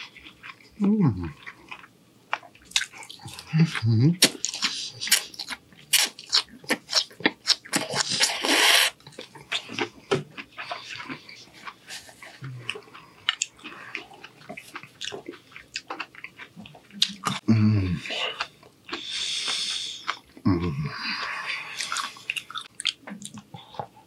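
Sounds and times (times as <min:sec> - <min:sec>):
chewing and lip-smacking: 0:00.0 - 0:17.4, 0:18.0 - 0:20.5, 0:21.2 - 0:24.0
loud slurp: 0:08.0 - 0:09.0.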